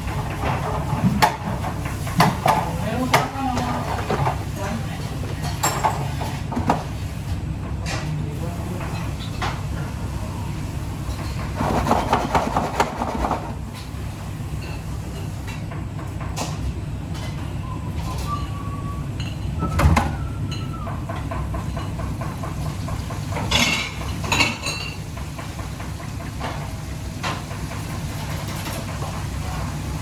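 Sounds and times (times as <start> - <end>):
metal pots and pans clinking: 20.4 - 25.1.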